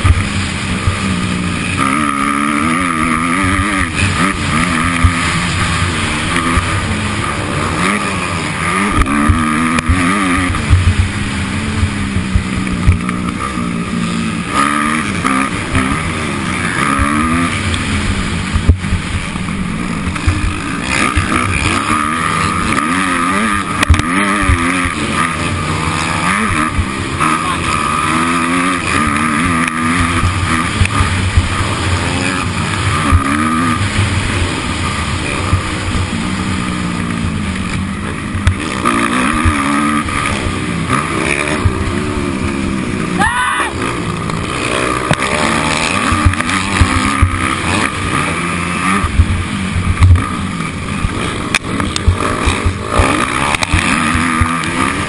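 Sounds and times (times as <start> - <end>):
dirt bike engine revving: 0.0 - 55.0
low thumps: 8.6 - 16.2, 16.8 - 22.8, 48.7 - 54.8.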